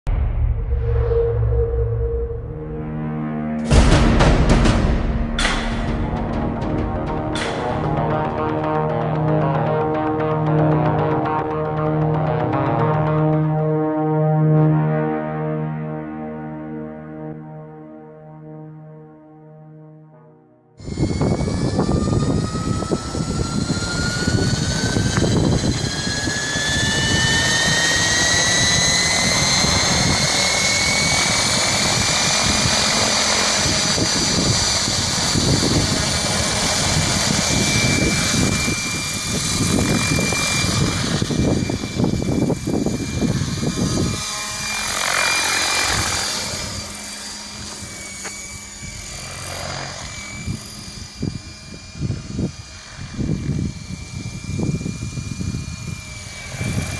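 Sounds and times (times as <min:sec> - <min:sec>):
low buffeting rumble: 0:00.1 - 0:10.6
rc helicopter rotor whine: 0:20.8 - 0:56.9.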